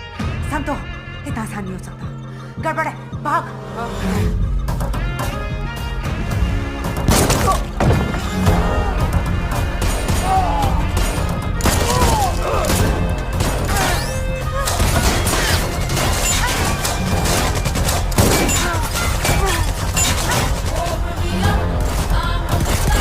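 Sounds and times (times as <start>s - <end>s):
dramatic score with heavy bass: 0.0s - 23.0s
rapid gunshots: 11.5s - 23.0s.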